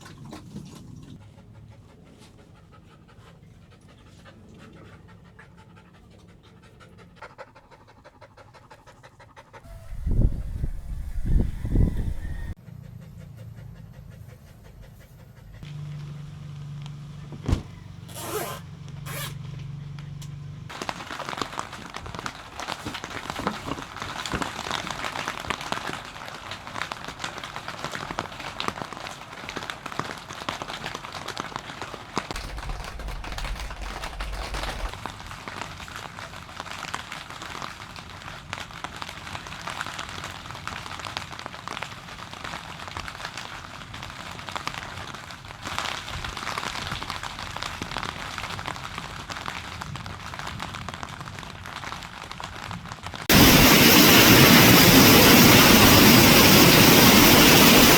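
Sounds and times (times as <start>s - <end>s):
low hum: 9.7s - 12.6s, 32.4s - 35.0s, 53.3s - 57.9s
rain pattering on a surface: 15.7s - 17.2s, 18.8s - 57.9s.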